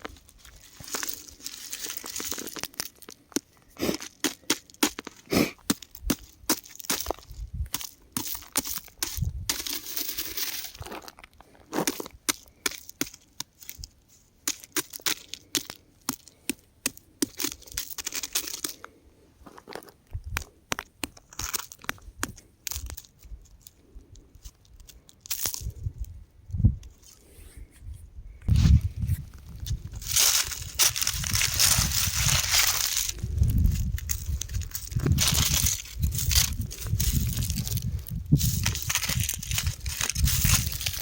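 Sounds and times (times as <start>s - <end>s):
rock crumbling and cracking: 0.0s - 26.1s, 28.5s - 41.0s.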